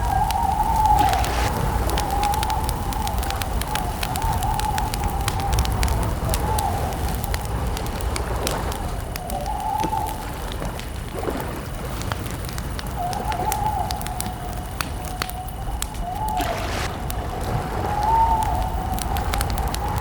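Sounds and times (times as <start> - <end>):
low rumble: 0.0 - 6.3, 16.3 - 20.0
campfire crackling and popping: 0.0 - 20.0.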